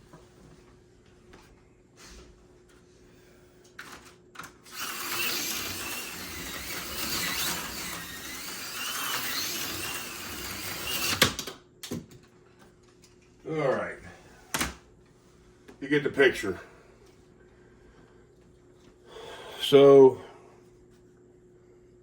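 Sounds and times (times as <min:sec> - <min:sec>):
slot car motor whining: 0:04.6 - 0:11.4.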